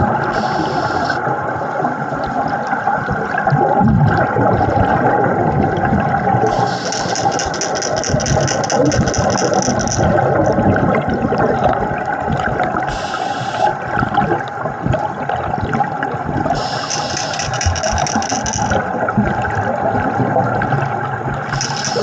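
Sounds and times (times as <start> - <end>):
regulator hissing inhalation: 0.4 - 1.2, 12.9 - 13.8, 16.6 - 17.6
regulator bubbling exhalation: 16.4 - 17.4.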